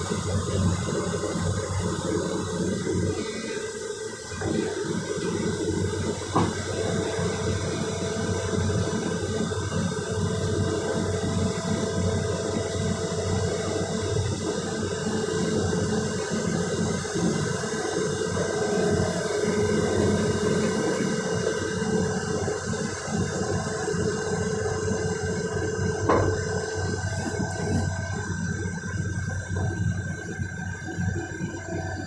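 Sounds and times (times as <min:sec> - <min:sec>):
excavator diesel engines running: 0:00.0 - 0:32.0
short knock: 0:26.0 - 0:26.4.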